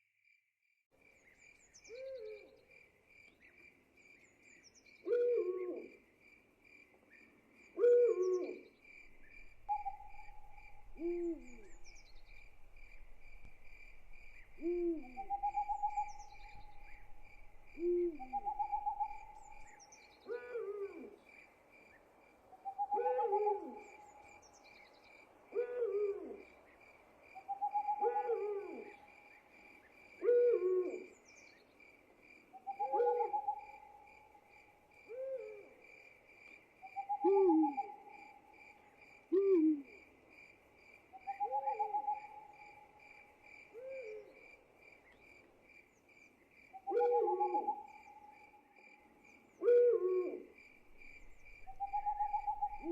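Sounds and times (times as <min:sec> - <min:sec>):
crickets chirping: 0:01.0 - 0:52.9
owls hooting: 0:09.4 - 0:12.5, 0:14.2 - 0:19.7, 0:22.6 - 0:24.0, 0:27.5 - 0:29.0, 0:32.6 - 0:33.8, 0:37.0 - 0:38.0, 0:46.8 - 0:48.1, 0:51.6 - 0:52.9.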